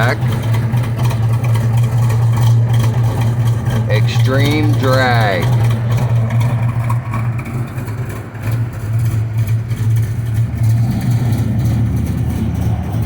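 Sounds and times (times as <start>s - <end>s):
car engine idling with choppy lope: 0.0s - 13.0s.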